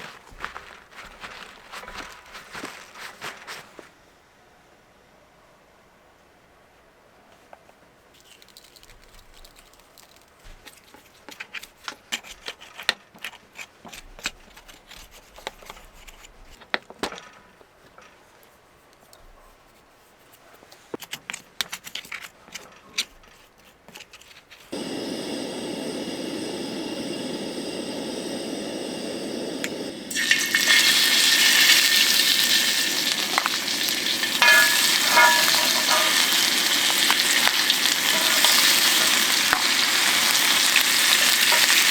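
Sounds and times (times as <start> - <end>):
food sizzling in a hot pan: 24.8 - 41.9
cooking preparation clicks and knocks: 29.6 - 41.9.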